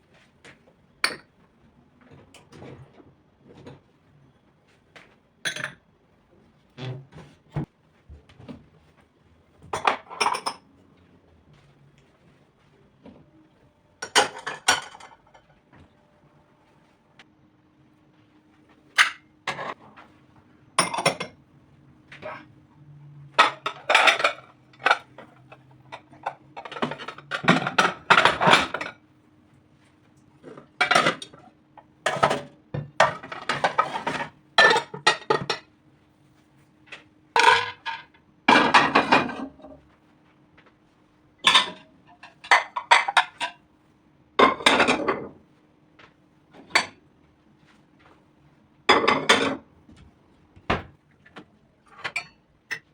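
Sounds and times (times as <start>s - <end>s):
dishes and cutlery clinking: 9.7s - 10.7s, 14.0s - 15.6s, 23.4s - 29.0s, 32.1s - 35.7s, 41.4s - 43.6s, 48.9s - 49.7s, 51.9s - 52.9s.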